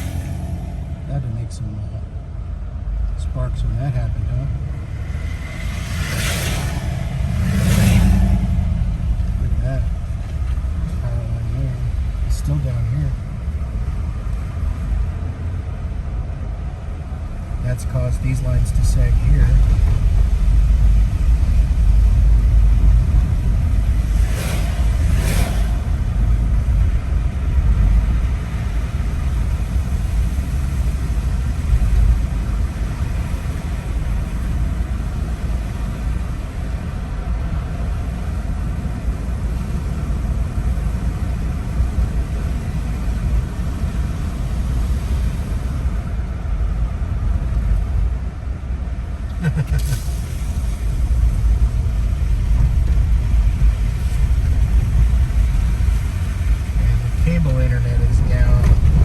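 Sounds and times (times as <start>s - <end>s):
short rushing sounds: 0.0s - 2.6s, 3.8s - 12.8s, 22.8s - 31.2s
car engine rumble: 0.0s - 59.0s
road noise: 0.0s - 59.0s.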